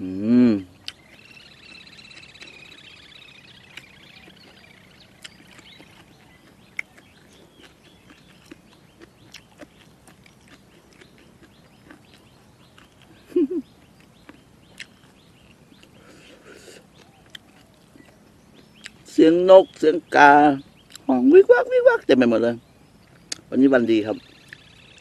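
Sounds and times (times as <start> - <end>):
birds calling: 0.0 - 25.0
crunchy chewing: 0.7 - 19.8, 20.8 - 21.1, 23.0 - 23.5.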